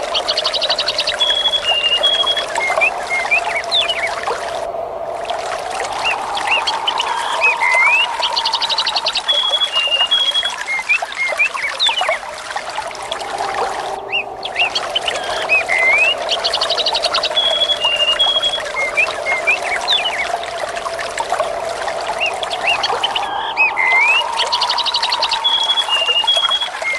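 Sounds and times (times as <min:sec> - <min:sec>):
birds chirping: 0:00.0 - 0:04.7, 0:05.9 - 0:12.3, 0:12.9 - 0:20.7, 0:21.5 - 0:26.9
running water: 0:00.0 - 0:26.9
rapid bird trill: 0:22.2 - 0:26.9.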